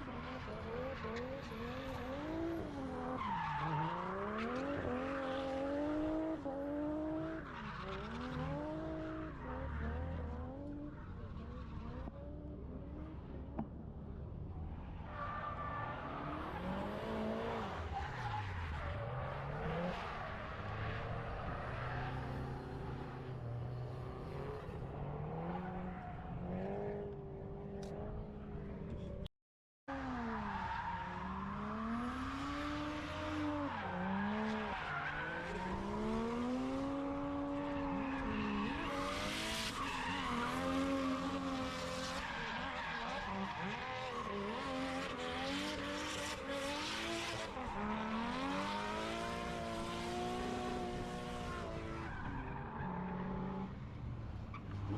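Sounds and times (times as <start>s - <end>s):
car engines revving: 0.0s - 29.3s, 29.9s - 54.9s
tyres skidding: 30.2s - 54.9s.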